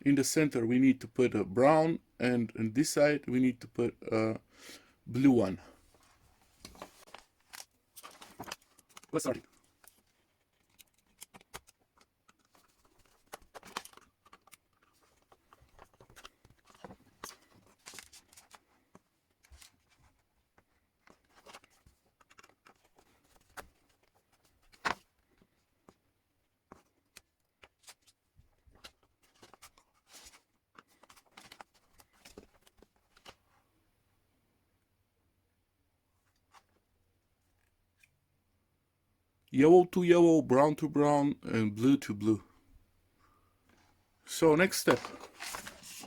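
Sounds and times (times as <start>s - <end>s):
hands handling wiring: 6.6s - 26.0s, 44.5s - 46.0s.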